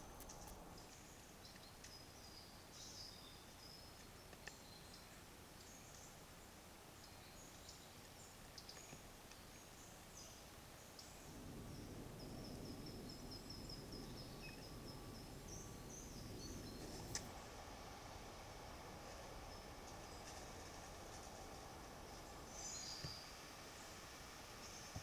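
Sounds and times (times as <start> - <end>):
songbird chirping: 0.0 - 17.6, 19.1 - 25.0
low background rumble: 10.1 - 25.0.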